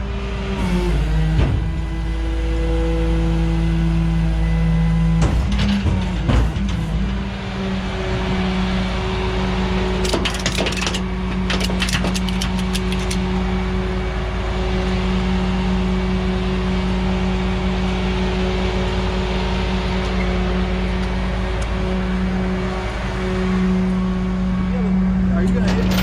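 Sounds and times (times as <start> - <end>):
diesel engine running: 0.0 - 26.0
metallic clicks and clanks: 5.2 - 7.2, 10.0 - 13.2, 25.5 - 26.0.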